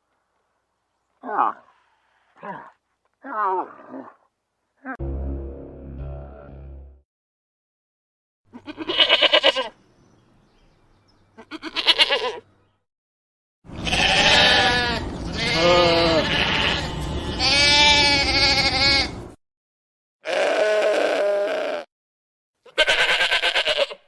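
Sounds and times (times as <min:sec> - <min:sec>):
sheep bleating: 0:08.5 - 0:09.7, 0:11.4 - 0:12.4, 0:13.8 - 0:19.2, 0:20.2 - 0:21.9, 0:22.6 - 0:24.0.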